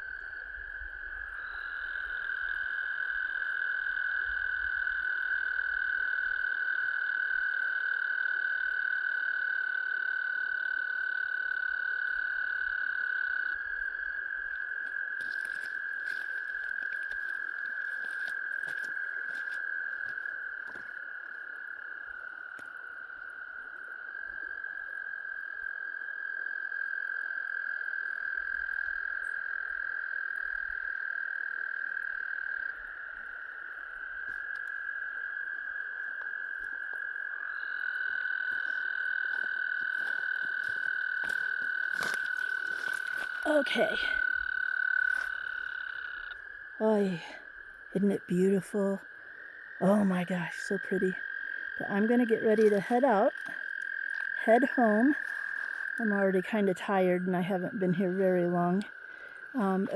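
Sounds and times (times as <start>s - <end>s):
frogs trilling: 0.0s - 59.9s.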